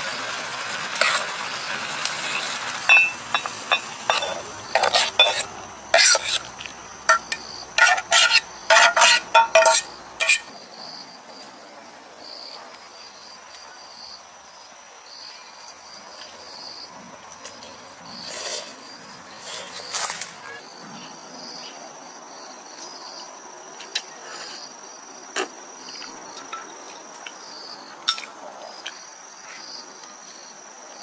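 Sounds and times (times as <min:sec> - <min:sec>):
crickets chirping: 0:00.0 - 0:31.0
metal utensil scraping cookware: 0:02.2 - 0:06.5, 0:07.1 - 0:10.5.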